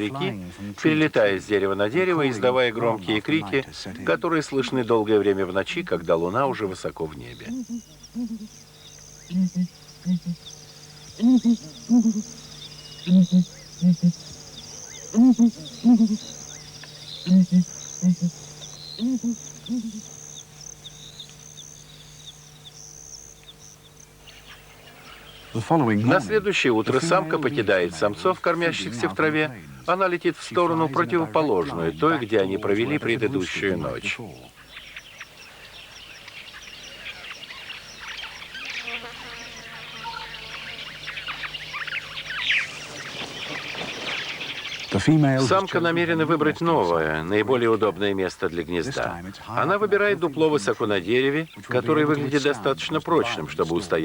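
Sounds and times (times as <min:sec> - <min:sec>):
faint low hum: 0:00.0 - 0:54.0
night insects chirping: 0:00.0 - 0:54.0
ground hornbill low calls: 0:07.2 - 0:29.9.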